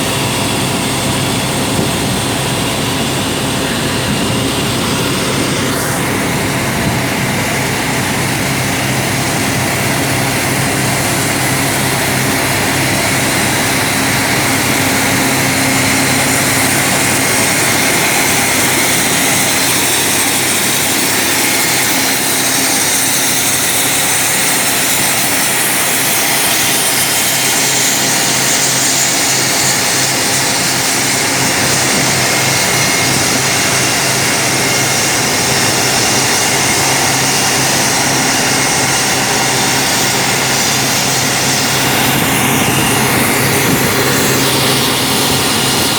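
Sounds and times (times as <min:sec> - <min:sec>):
drill rig engine drone: 0:00.0 - 0:45.9.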